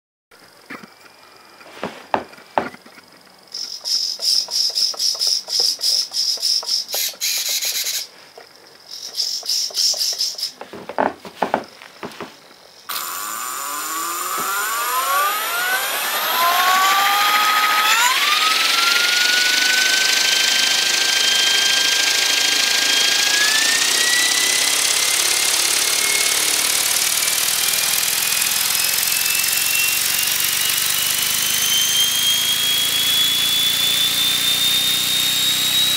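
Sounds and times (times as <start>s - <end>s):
servos buzzing: 12.8s - 35.9s
electric motor whining: 12.9s - 35.9s.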